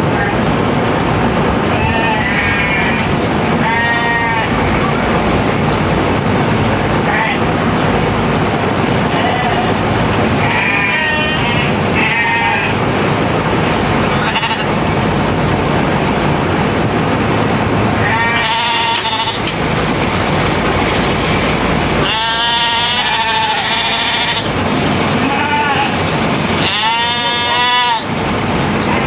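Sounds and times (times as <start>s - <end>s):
sheep bleating: 1.7s - 3.0s, 3.6s - 4.5s, 9.1s - 9.8s, 10.4s - 12.8s, 14.2s - 14.7s, 18.0s - 19.5s, 22.0s - 24.5s, 26.6s - 28.1s.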